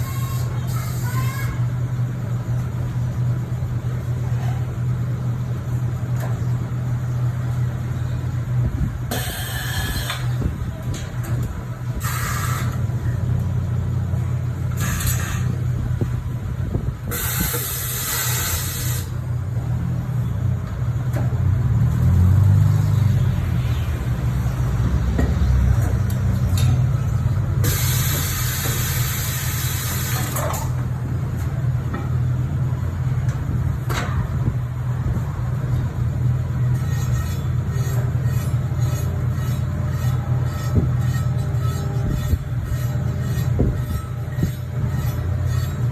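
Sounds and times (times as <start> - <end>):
pneumatic tool bursts: 0.0 - 1.6, 9.1 - 10.5, 12.0 - 12.8, 14.7 - 15.6, 17.1 - 19.2, 27.6 - 30.8.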